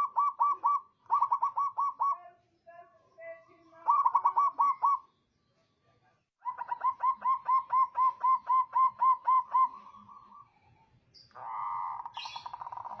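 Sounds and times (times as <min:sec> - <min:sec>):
dove cooing: 0:00.0 - 0:02.2, 0:03.8 - 0:05.1, 0:06.4 - 0:10.5, 0:11.3 - 0:13.0.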